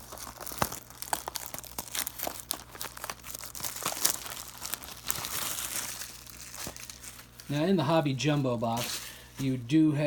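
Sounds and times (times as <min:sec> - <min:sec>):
plastic wrapping crinkling and tearing: 0:00.0 - 0:09.6.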